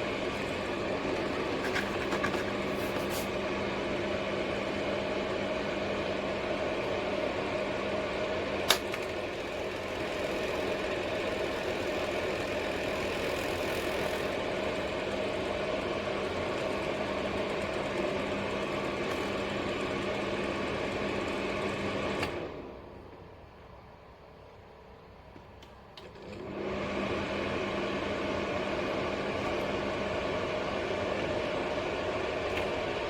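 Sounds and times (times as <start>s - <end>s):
fan heater running: 0.0s - 33.0s.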